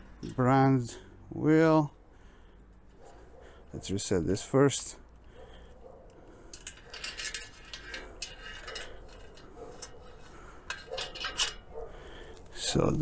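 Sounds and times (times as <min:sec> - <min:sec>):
bicycle wheel handling clicks and knocks: 0:06.1 - 0:12.6.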